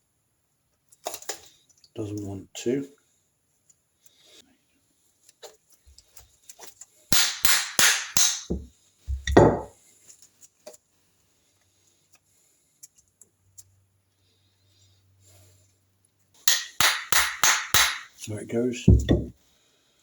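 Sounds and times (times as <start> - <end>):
hammer tapping metal: 7.1 - 9.7, 16.5 - 18.2.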